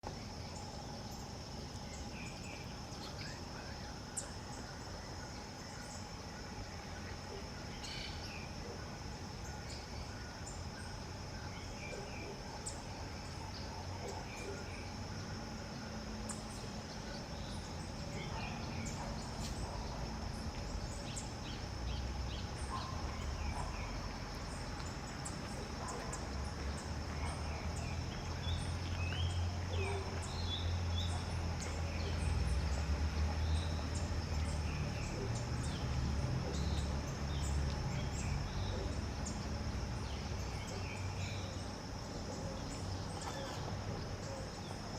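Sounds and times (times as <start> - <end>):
high insect drone: 0.0 - 44.9
small birds chirping: 16.2 - 44.9.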